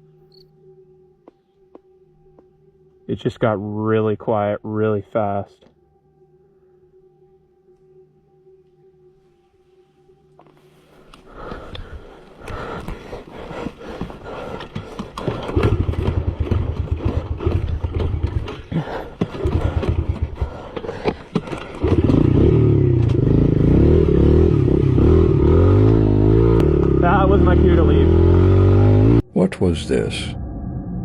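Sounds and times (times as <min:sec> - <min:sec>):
motorcycle engine revving: 0:12.5 - 0:29.3.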